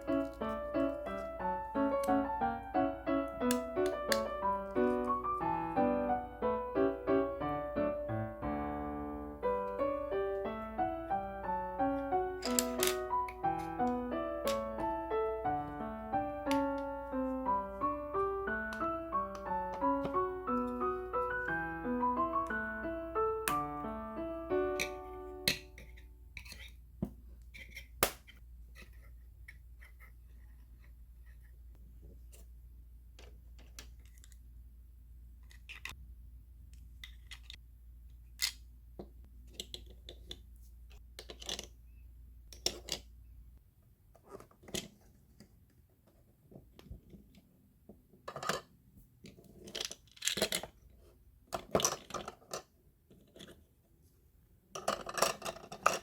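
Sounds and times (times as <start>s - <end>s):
plastic toy pieces clicking: 12.4s - 14.9s, 49.6s - 50.8s, 54.8s - 56.0s.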